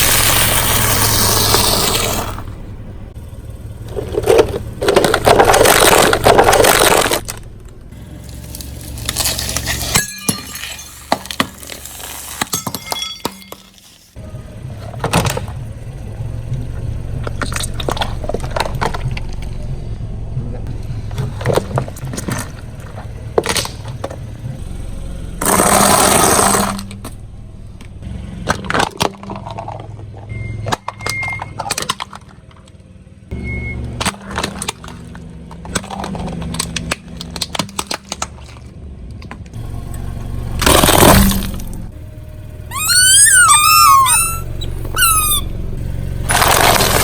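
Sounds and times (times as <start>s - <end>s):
car engine humming: 0.0s - 12.4s, 14.1s - 47.0s
tyre crushing objects: 3.8s - 14.0s, 20.9s - 24.6s, 25.4s - 27.2s, 46.2s - 47.0s.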